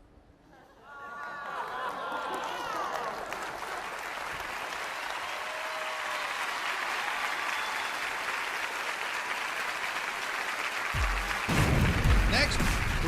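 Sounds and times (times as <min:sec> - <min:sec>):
audience applauding and cheering: 0:00.9 - 0:13.0.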